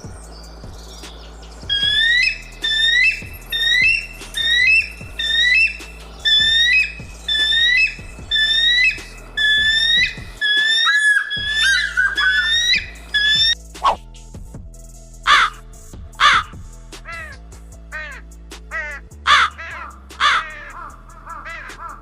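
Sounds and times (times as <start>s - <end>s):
bird squawking call: 1.7s - 14.0s, 15.3s - 15.6s, 16.2s - 16.5s, 18.8s - 22.0s.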